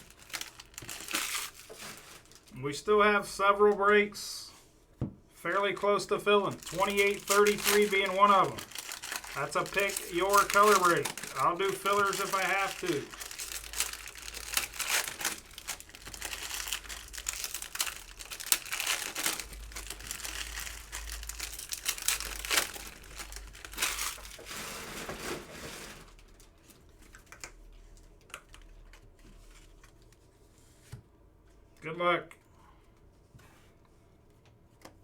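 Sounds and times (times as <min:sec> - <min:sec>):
foil wrappers crinkling and tearing: 0:00.0 - 0:02.6, 0:06.3 - 0:27.6.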